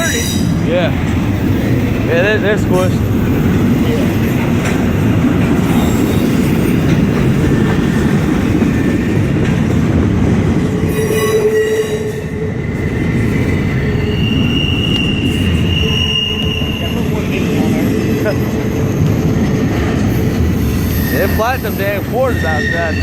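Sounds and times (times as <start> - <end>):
train wheels rumbling on rails: 0.0 - 23.0
wheel squeals: 10.9 - 23.0.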